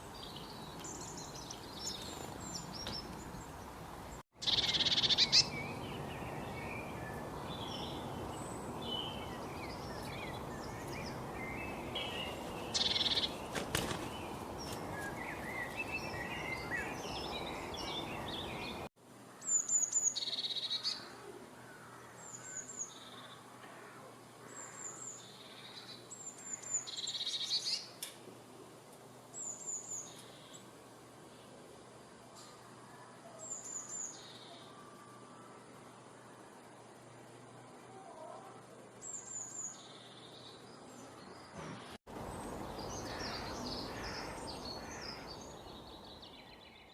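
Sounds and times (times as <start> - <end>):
birds chirping: 0.0 - 28.0, 32.3 - 46.9
bird repeating high song phrase: 4.4 - 5.9.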